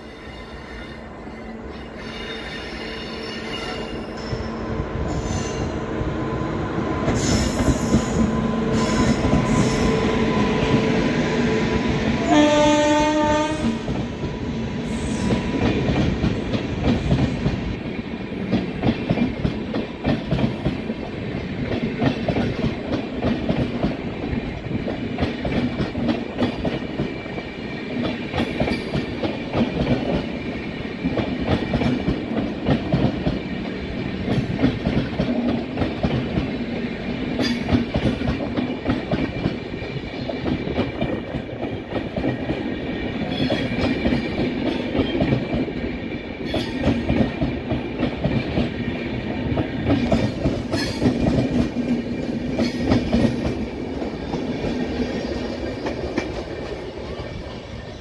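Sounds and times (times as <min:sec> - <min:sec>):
train hum: 0:00.0 - 0:58.0
train horn blast: 0:12.2 - 0:14.0.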